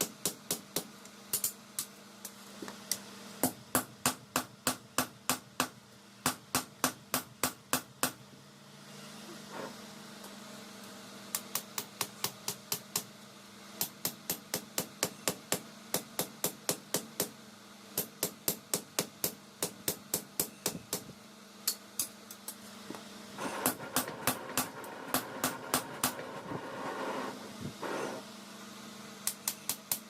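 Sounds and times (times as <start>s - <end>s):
steady hum: 0.0s - 30.0s
rough noise: 25.9s - 28.3s.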